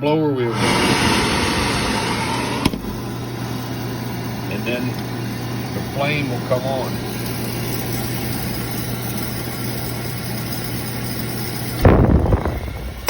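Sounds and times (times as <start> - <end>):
electrical hum: 0.0 - 13.0
oil burner running: 0.4 - 13.0
short rumbling burst: 0.5 - 3.5.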